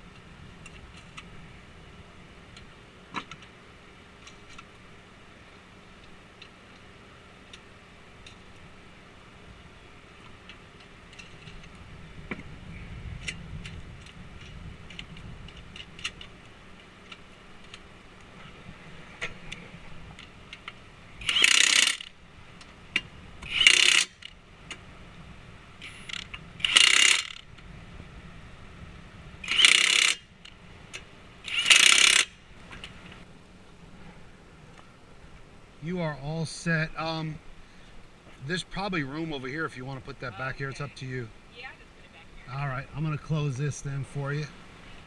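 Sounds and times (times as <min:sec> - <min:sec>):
tools ticking and clinking: 0:20.6 - 0:22.1, 0:29.4 - 0:32.3
impact wrench bursts: 0:21.2 - 0:22.1, 0:23.4 - 0:24.3, 0:25.8 - 0:27.5, 0:29.4 - 0:30.3, 0:31.4 - 0:32.4.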